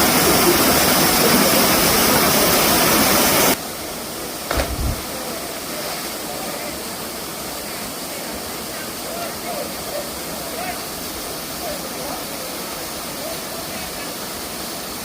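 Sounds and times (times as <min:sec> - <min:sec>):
waterfall rushing: 0:00.0 - 0:15.0
low thump: 0:04.5 - 0:05.0.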